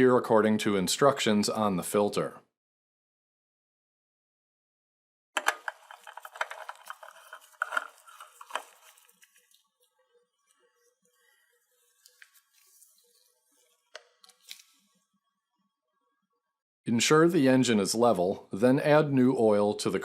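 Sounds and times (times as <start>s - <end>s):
oil filter scraping and clicking: 5.4s - 9.8s.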